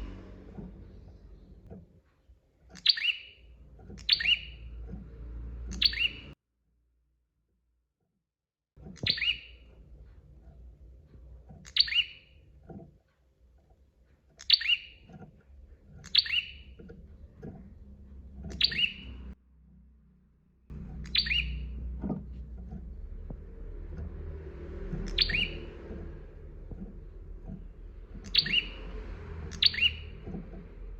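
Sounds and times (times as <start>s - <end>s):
low hum: 0.0s - 1.8s, 15.0s - 30.9s
bird calling sharp falling notes: 25.0s - 25.8s.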